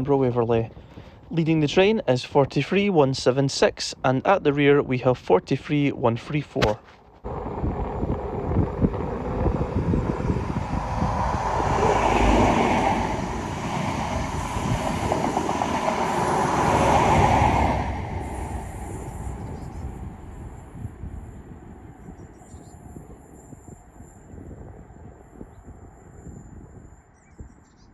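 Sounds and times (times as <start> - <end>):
diesel train passing at speed: 7.3 - 27.0.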